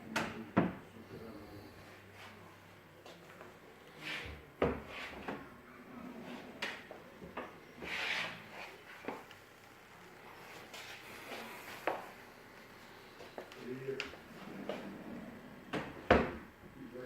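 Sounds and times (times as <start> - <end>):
drawers sliding and rubbing: 7.8 - 8.8, 14.3 - 15.4
cabinet doors and drawers knocking: 15.7 - 16.4.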